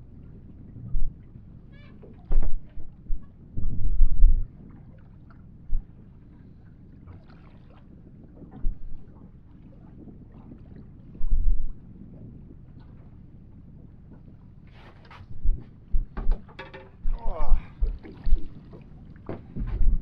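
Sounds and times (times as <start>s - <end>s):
heavy thumps on boat: 15.4s - 20.0s.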